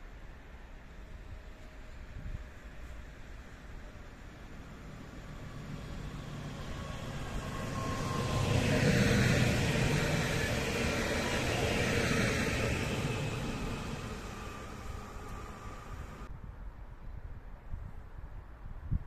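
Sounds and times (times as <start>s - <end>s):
train whine: 0.3s - 16.3s
train wheels rumbling on rails: 1.4s - 16.3s.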